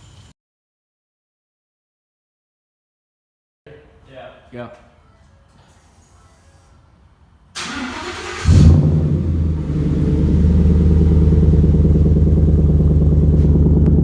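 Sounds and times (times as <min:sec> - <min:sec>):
engine starting and idling: 0:07.6 - 0:14.0.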